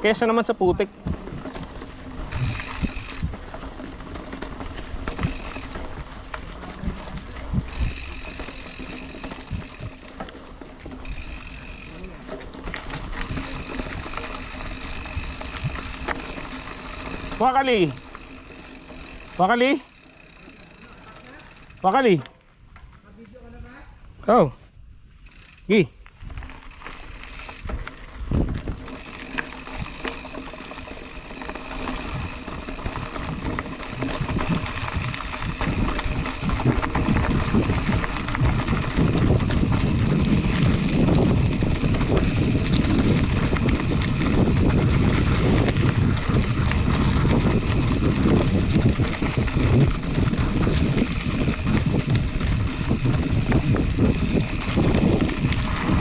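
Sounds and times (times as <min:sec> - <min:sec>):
bike rattling over bumps: 0:00.0 - 0:23.0, 0:25.0 - 0:56.0
bike tyre noise on trail: 0:00.0 - 0:56.0
wind on microphone: 0:00.8 - 0:03.5, 0:31.8 - 0:56.0.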